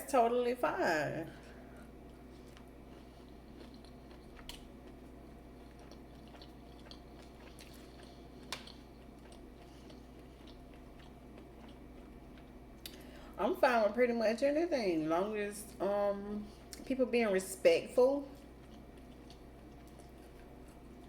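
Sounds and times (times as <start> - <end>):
low steady hum: 0.0 - 21.0
faint chewing of food: 1.3 - 13.4, 16.4 - 17.0, 18.2 - 21.0.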